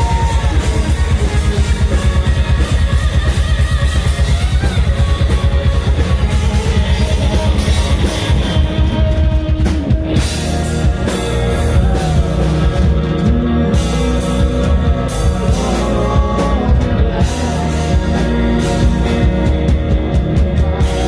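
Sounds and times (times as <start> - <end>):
pounding drum kit: 0.0 - 21.0
rock band playing: 0.0 - 21.0.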